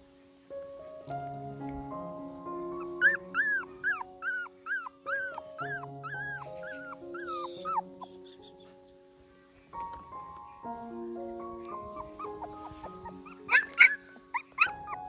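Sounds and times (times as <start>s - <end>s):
soft background music: 0.0s - 15.0s
puppy whimpering and yelping: 2.8s - 8.1s, 11.6s - 15.0s.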